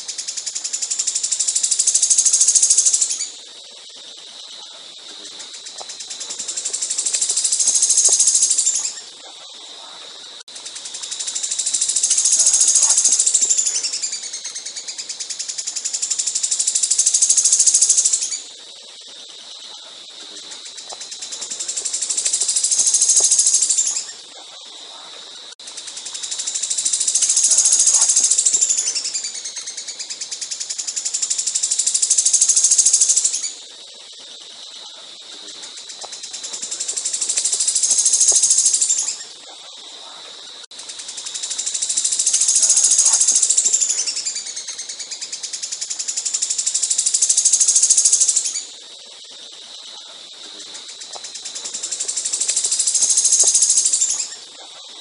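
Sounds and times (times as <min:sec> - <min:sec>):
songbird trilling: 0:05.8 - 0:09.0, 0:11.4 - 0:15.7, 0:26.2 - 0:30.6, 0:35.9 - 0:39.2, 0:41.4 - 0:48.6, 0:51.0 - 0:54.4.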